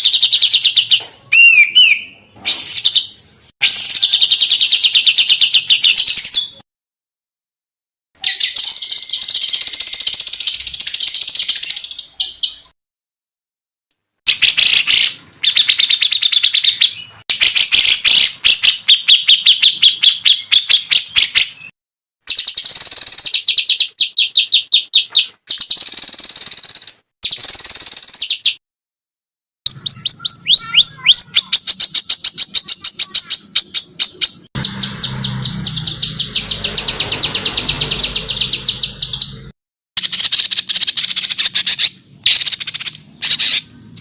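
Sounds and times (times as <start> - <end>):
songbird trilling: 29.7 - 39.4.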